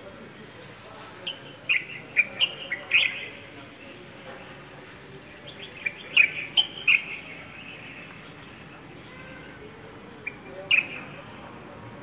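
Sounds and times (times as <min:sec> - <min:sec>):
small birds chirping: 0:01.2 - 0:04.0, 0:05.2 - 0:09.1, 0:10.2 - 0:11.2.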